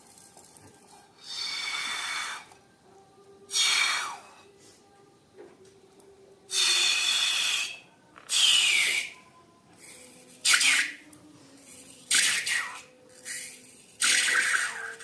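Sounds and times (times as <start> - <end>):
balloon air hissing out: 1.2 - 2.5, 3.5 - 4.3, 6.5 - 9.1, 9.8 - 11.0
balloon squealing: 6.5 - 9.1.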